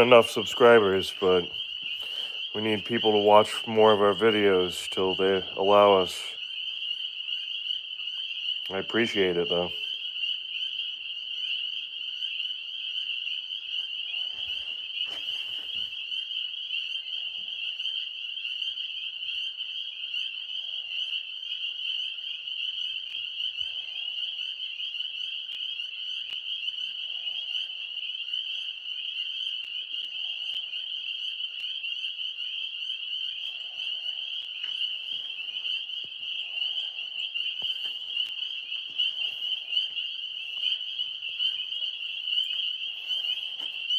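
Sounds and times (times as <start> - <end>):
lower frog call: 0.0 - 43.9
tree frogs trilling: 0.0 - 43.9
rustle: 14.2 - 16.0.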